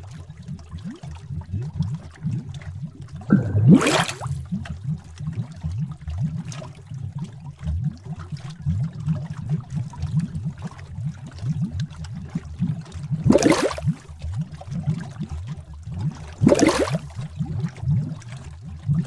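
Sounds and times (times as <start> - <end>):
thick liquid bubbling: 0.0 - 19.0
gurgling burst: 3.3 - 4.5, 13.3 - 14.0, 16.4 - 17.2.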